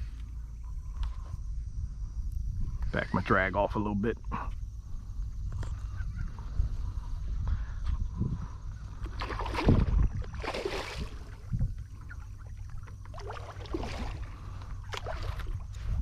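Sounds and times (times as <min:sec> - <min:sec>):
wind rumble on microphone: 0:00.0 - 0:16.0
water splashing around kayak: 0:09.0 - 0:16.0.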